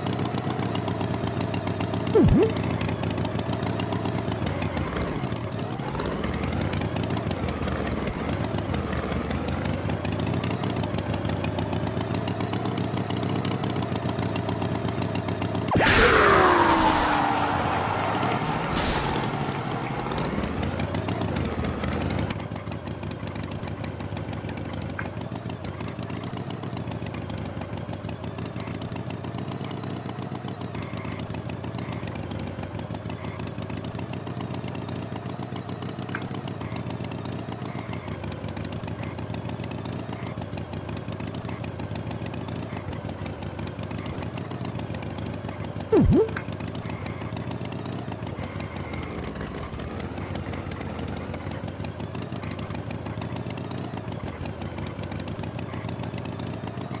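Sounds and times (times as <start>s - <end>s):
falling swoop-like tone: 2.2s - 2.7s, 15.7s - 21.9s, 46.0s - 46.5s.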